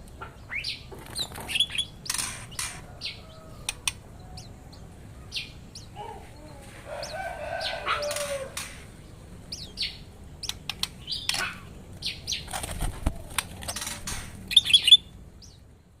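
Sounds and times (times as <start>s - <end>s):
songbirds chirping: 0.0s - 16.0s
loud high bird trilling: 0.4s - 4.5s, 13.7s - 15.1s
birds fluttering wings: 0.9s - 3.0s, 10.6s - 14.6s.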